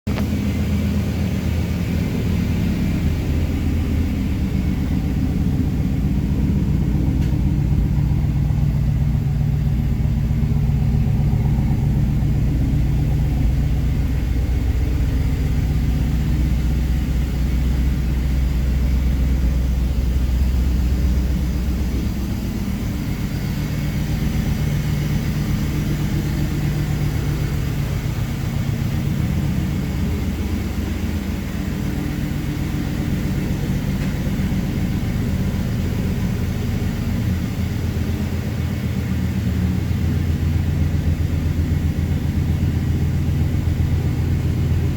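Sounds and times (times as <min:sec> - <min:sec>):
car engine idling: 0:00.0 - 0:44.9.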